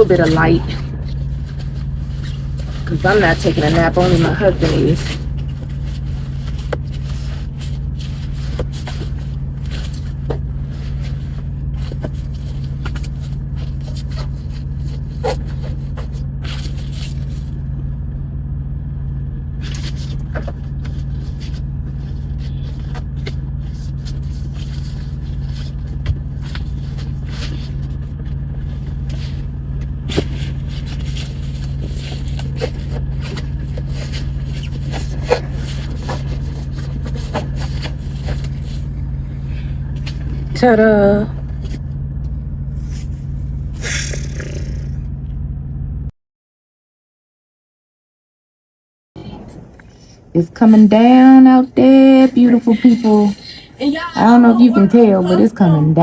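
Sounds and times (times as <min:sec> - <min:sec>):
window coverings crinkling: 0:00.0 - 0:17.6, 0:19.6 - 0:39.0
diesel engine drone: 0:00.0 - 0:46.1.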